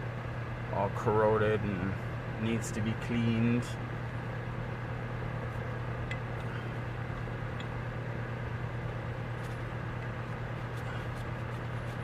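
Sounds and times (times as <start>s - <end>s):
low hum with hiss: 0.0s - 12.0s.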